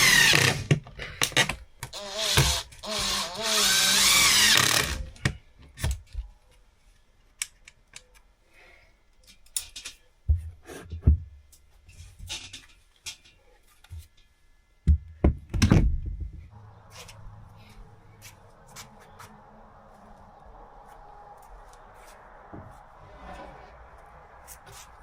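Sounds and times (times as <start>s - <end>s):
power drill running: 0.0s - 0.7s, 2.0s - 5.0s.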